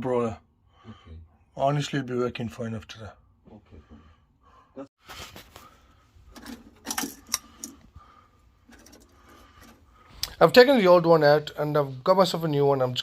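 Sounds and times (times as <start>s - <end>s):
tools clicking and rattling: 6.3s - 7.9s, 8.6s - 9.8s.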